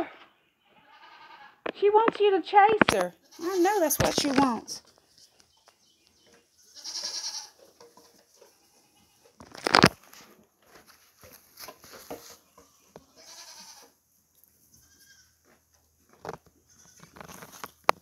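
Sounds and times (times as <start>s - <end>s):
goats bleating: 0.7s - 1.6s, 3.2s - 4.1s, 6.6s - 7.7s, 12.8s - 14.0s, 14.7s - 15.4s
knocks and rustles: 3.8s - 5.5s, 7.6s - 13.1s, 15.5s - 18.0s.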